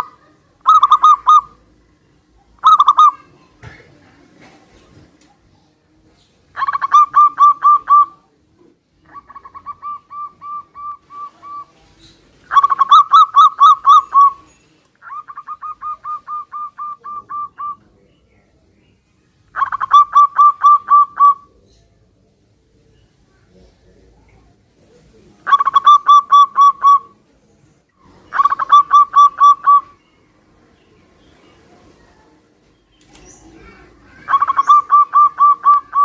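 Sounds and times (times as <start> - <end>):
doves cooing: 0.0 - 1.8, 2.4 - 3.2, 6.5 - 18.0, 19.5 - 21.6, 24.8 - 27.2, 28.0 - 30.0, 33.1 - 36.0.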